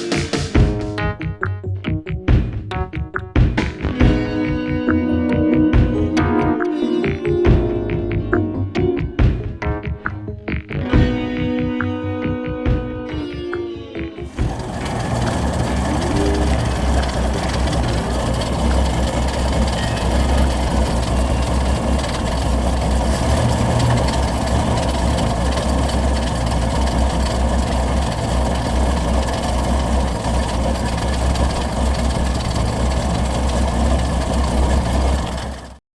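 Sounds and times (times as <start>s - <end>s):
pickup engine rumbling: 14.2s - 35.8s.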